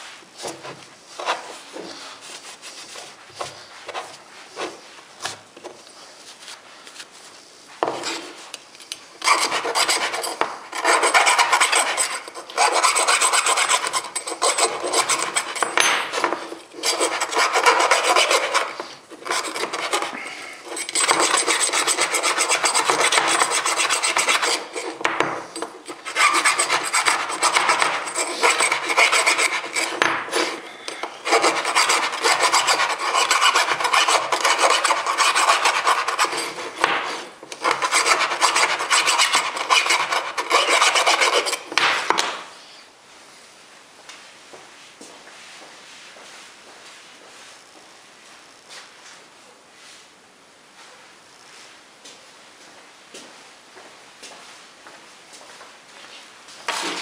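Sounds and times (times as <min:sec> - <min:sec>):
hand file rasping on metal: 0:09.2 - 0:25.0, 0:25.9 - 0:41.7.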